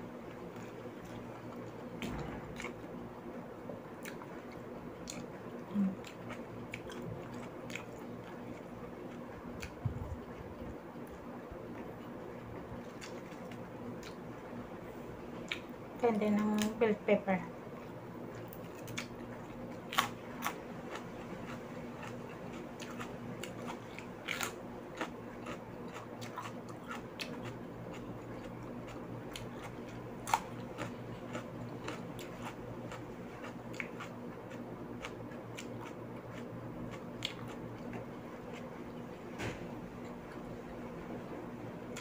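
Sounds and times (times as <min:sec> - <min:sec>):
steady low hum: 0:00.0 - 0:42.0
person crunching raw pepper: 0:18.5 - 0:38.7.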